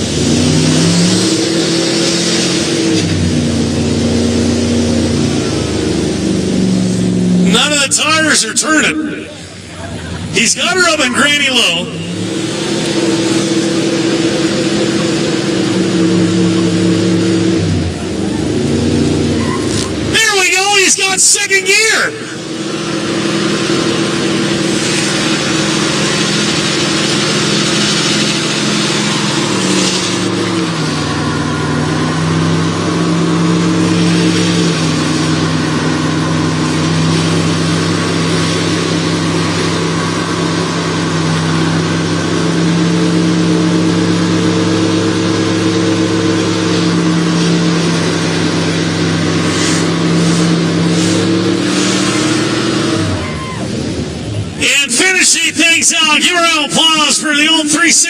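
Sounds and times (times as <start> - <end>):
truck engine at high revs: 0.0 - 58.0
tire spinning in water: 21.7 - 55.1.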